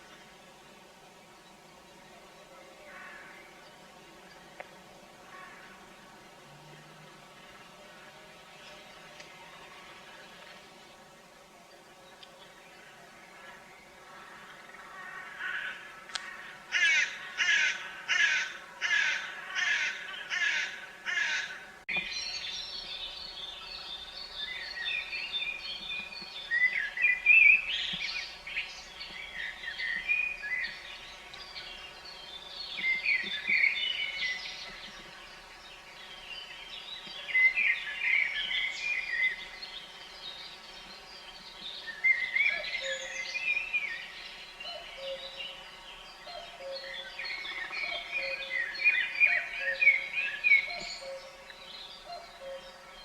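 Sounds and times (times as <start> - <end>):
songbirds chirping and singing: 0.0 - 53.0
crow cawing: 14.2 - 21.6.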